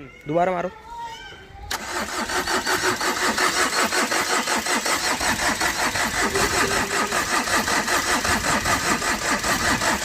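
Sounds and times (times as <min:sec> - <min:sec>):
diesel engine cranking: 0:01.7 - 0:10.0.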